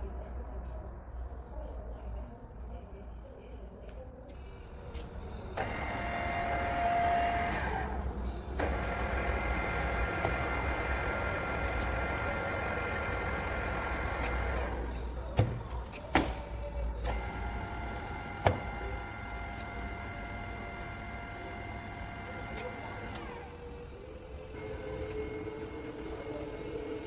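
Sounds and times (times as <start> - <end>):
drilling machine motor whine: 5.2 - 15.4, 17.0 - 27.0.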